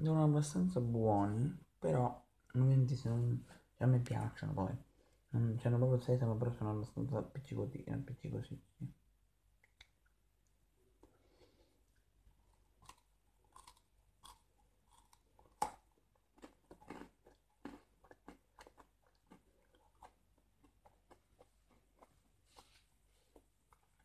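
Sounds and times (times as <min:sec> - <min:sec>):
biting and chewing snack bar: 0:12.5 - 0:22.7.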